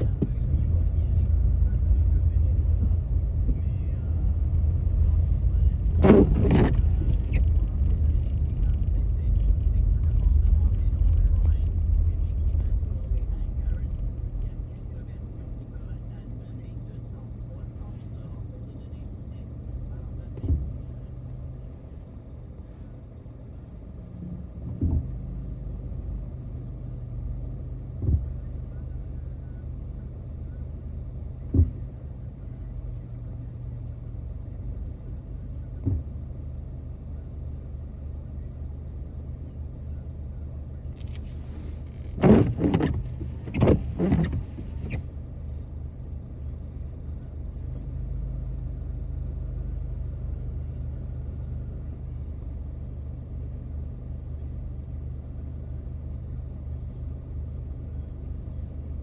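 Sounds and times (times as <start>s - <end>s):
car engine and tyres rumbling: 0.0s - 59.0s
small thumps: 41.0s - 45.1s.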